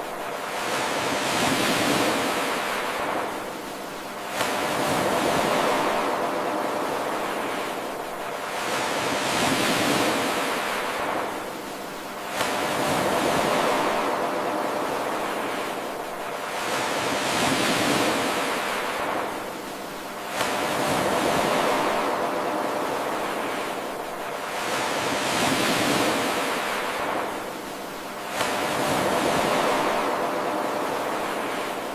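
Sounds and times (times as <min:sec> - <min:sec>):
ocean waves washing on shore: 0:00.0 - 0:31.9.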